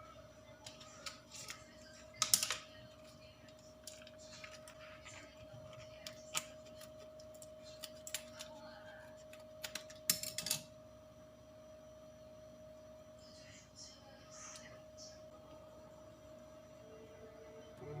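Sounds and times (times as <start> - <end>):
faint steady hum: 0.0 - 18.0
kitchen utensils tapping and clicking: 9.6 - 10.7.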